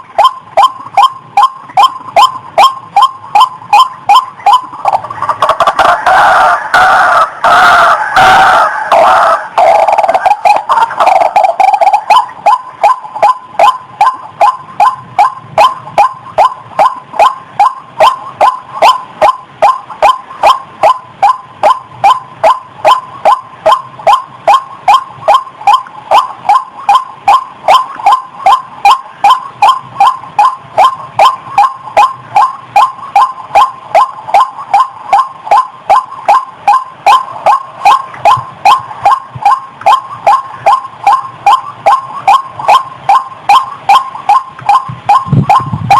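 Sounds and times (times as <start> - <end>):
waterhen calling: 0.0 - 45.9.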